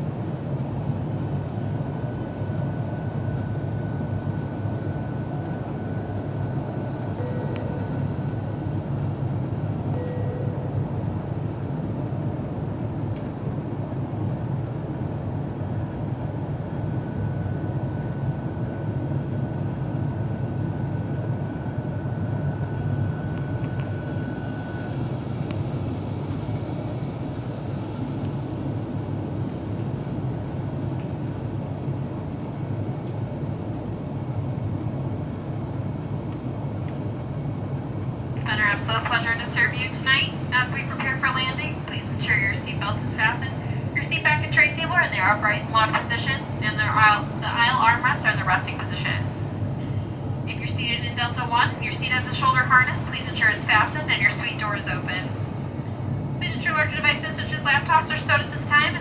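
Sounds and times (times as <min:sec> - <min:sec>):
airplane cabin drone: 0:00.0 - 0:59.0
thin faint tone: 0:07.2 - 0:08.5, 0:09.9 - 0:10.8.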